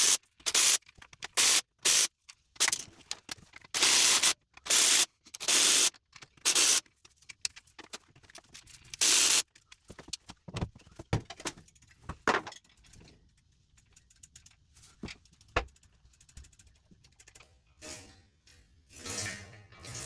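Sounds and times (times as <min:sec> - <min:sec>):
hissing spray bursts: 0:00.0 - 0:00.8, 0:01.4 - 0:02.1, 0:03.8 - 0:05.9, 0:06.5 - 0:06.8, 0:09.0 - 0:09.4
metal tools clicking and knocking: 0:02.6 - 0:09.4, 0:10.1 - 0:17.4.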